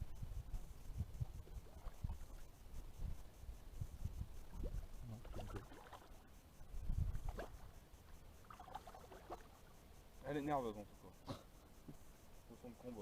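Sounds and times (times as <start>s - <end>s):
water splashing and sloshing: 1.4s - 2.6s, 4.5s - 6.3s, 7.1s - 9.8s.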